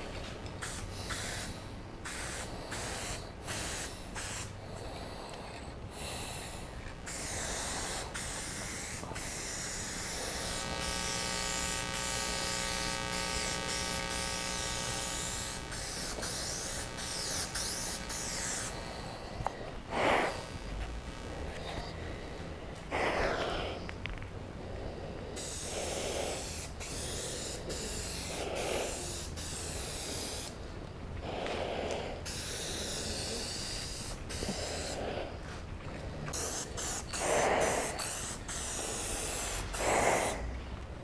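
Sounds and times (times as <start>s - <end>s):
faint steady whine: 0.0s - 41.0s
spray paint can hissing: 0.6s - 4.6s, 5.9s - 19.3s, 19.9s - 21.8s, 25.4s - 30.6s, 32.3s - 35.0s, 36.4s - 40.4s.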